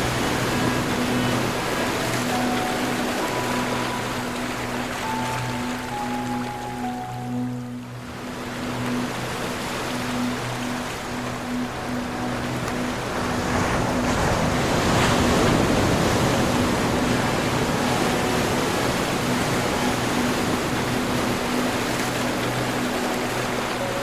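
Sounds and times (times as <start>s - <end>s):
low steady tones: 0.0s - 24.0s
ocean surf washing: 0.0s - 24.0s.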